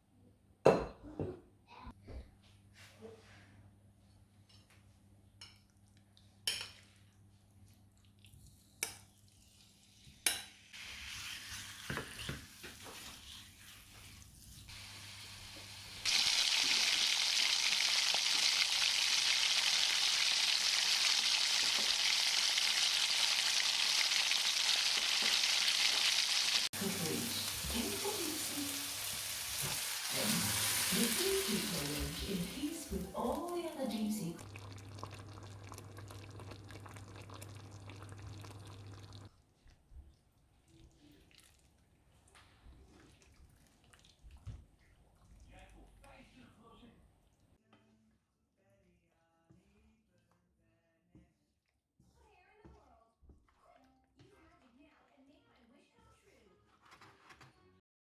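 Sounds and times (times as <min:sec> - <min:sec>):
stirring food in a pan: 0:06.4 - 0:14.8, 0:26.7 - 0:46.2
food frying in hot oil: 0:09.6 - 0:33.2, 0:34.0 - 0:39.3.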